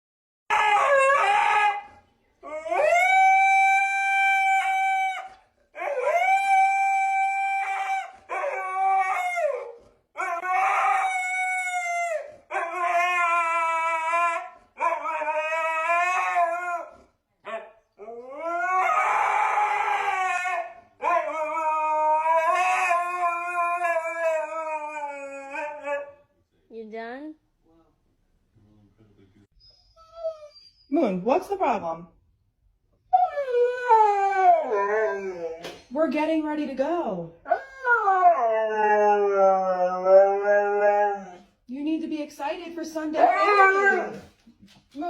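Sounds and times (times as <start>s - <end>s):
husky howling: 0.5s - 26.2s, 33.1s - 35.7s, 37.5s - 41.5s, 43.2s - 44.4s.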